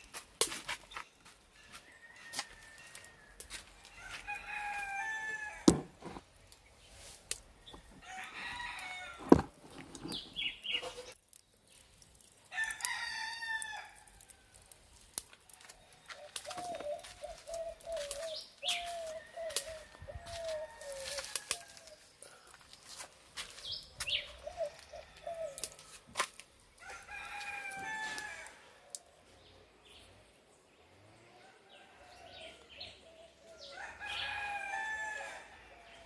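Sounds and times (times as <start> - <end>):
rooster crowing: 1.6 - 6.2, 7.7 - 9.5, 12.5 - 14.2, 18.7 - 22.0, 26.8 - 28.8, 33.5 - 36.0
sharp knocks: 5.7 - 6.2.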